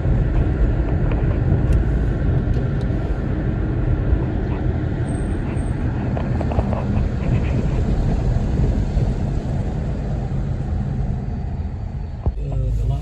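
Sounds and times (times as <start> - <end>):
highway traffic rumble: 0.0 - 13.0.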